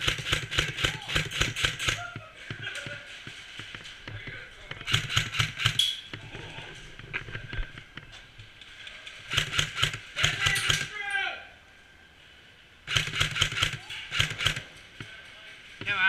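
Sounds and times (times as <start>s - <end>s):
airsoft gunfire: 0.0s - 2.2s, 4.8s - 6.0s, 9.3s - 11.0s, 12.9s - 14.7s.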